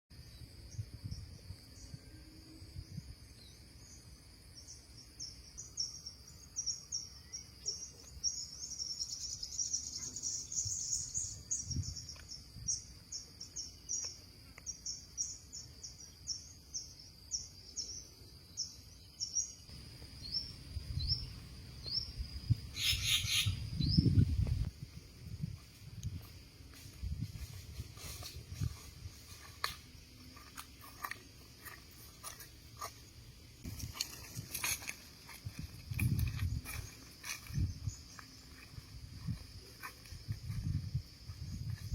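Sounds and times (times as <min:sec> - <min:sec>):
birds chirping: 0:03.4 - 0:24.3.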